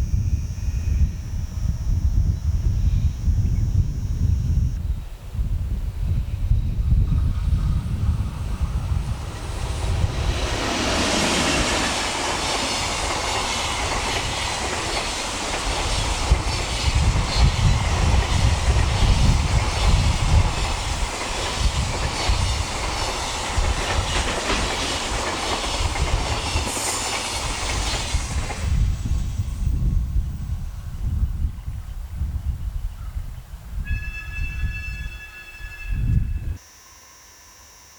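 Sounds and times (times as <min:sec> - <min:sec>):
electric locomotive passing: 0:00.1 - 0:31.7, 0:33.6 - 0:36.6
rail noise of wagons: 0:05.9 - 0:31.3
wheels clacking over rail joints: 0:07.6 - 0:28.8.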